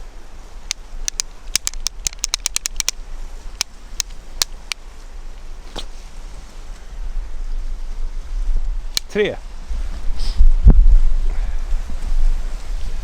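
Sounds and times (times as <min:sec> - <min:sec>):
low wind rumble: 0:00.0 - 0:13.0
sharp clicks and ticks: 0:00.7 - 0:03.0, 0:03.6 - 0:04.8.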